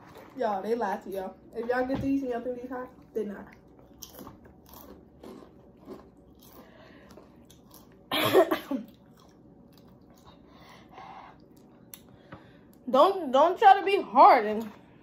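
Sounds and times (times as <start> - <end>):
chewing chips: 3.5 - 8.1, 8.8 - 10.7
person coughing: 8.1 - 9.0.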